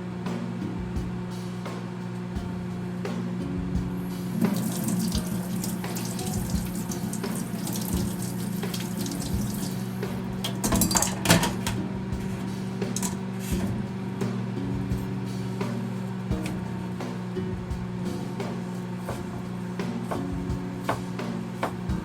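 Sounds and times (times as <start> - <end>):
background music: 0.0 - 22.0
tap running into sink: 4.2 - 11.8.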